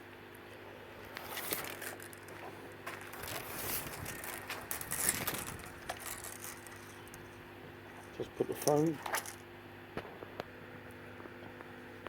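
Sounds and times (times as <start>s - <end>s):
tape measure handling noises: 1.0s - 9.4s.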